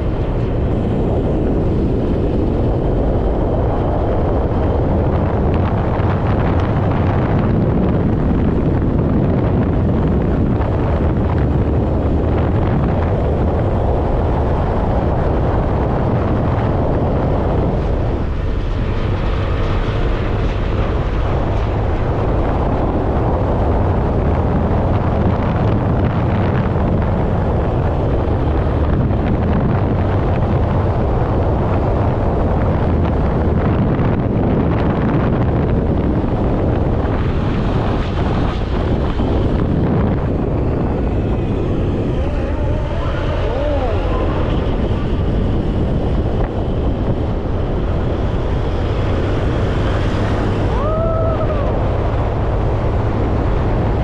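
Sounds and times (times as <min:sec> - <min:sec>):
motorcycle running: 0:00.0 - 0:54.0
wind buffeting microphone: 0:00.0 - 0:54.0.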